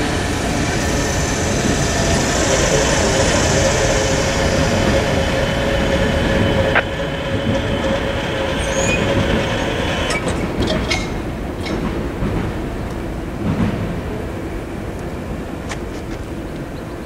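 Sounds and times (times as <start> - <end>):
freight train rumbling: 0.0 - 17.0
train wheel squeal: 7.8 - 11.1.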